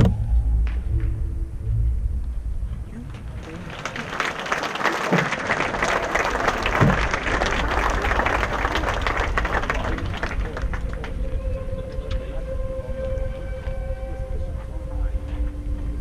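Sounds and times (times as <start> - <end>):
held music note: 10.6 - 16.0.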